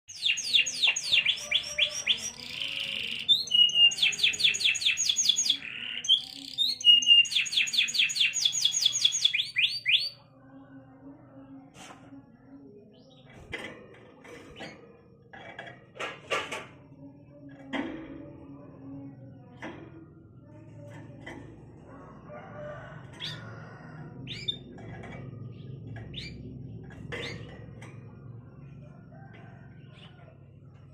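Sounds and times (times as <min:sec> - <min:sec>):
canary singing: 0:00.1 - 0:10.8, 0:21.9 - 0:30.9.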